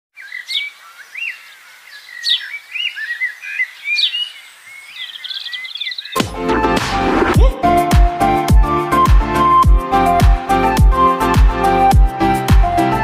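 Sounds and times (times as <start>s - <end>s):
birds singing: 0.2s - 6.2s
electronic music with heavy bass: 6.2s - 13.0s.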